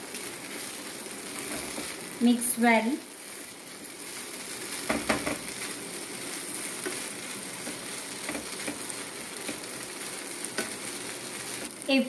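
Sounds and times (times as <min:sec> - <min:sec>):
prawns sizzling in pan: 0:00.0 - 0:12.0
spatula scraping and knocking pan: 0:01.4 - 0:02.0, 0:04.8 - 0:05.6, 0:06.7 - 0:09.8, 0:10.4 - 0:10.9.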